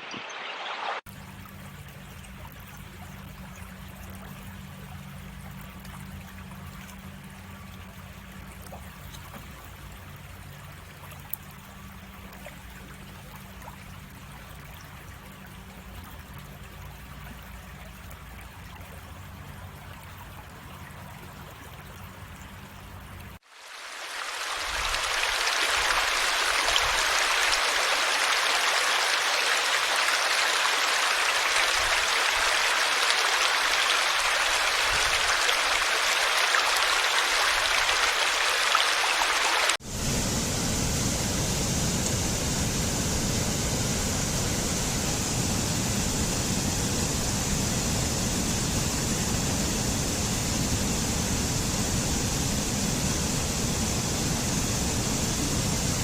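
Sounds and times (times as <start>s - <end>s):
running water rushing: 0.0s - 56.0s
deeper water rumble: 24.2s - 56.0s.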